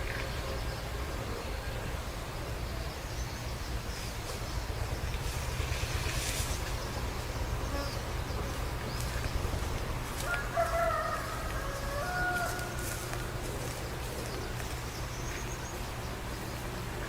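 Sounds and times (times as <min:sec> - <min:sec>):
rooster crowing: 0:10.2 - 0:13.1.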